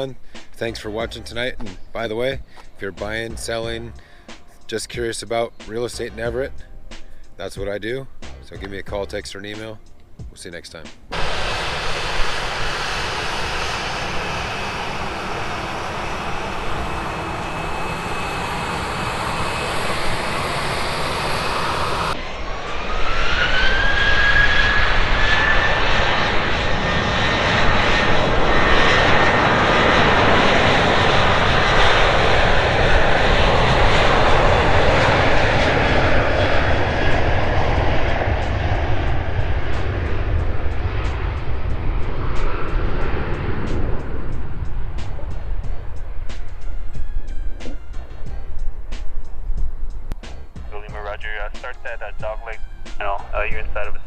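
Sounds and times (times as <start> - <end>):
jet engine rushing: 10.5 - 54.0
high whine rising in pitch: 11.1 - 50.9.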